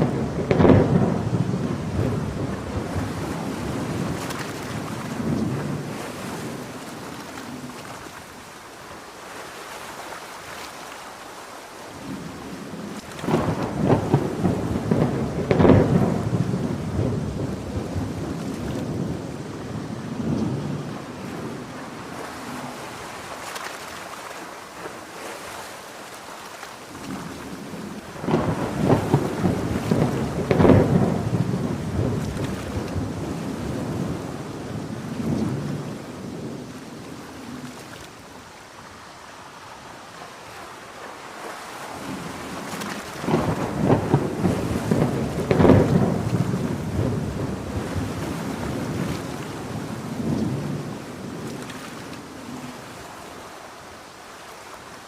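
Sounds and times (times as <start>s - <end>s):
thunder rolling: 0.0s - 7.8s, 12.0s - 23.0s, 27.0s - 37.0s, 42.0s - 51.7s
heavy rain: 0.0s - 55.0s.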